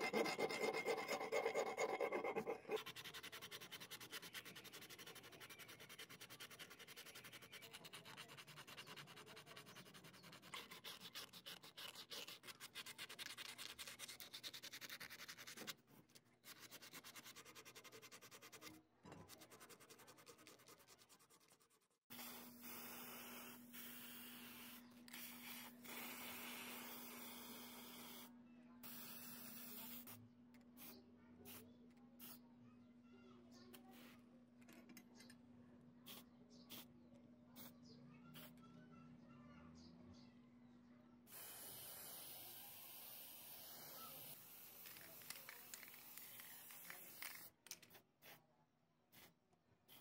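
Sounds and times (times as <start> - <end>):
fingers rubbing tape on metal: 0.0 - 22.0
spray paint hissing: 22.1 - 28.2, 28.8 - 30.2, 30.8 - 31.6, 36.1 - 36.9, 41.3 - 47.5, 49.1 - 49.3.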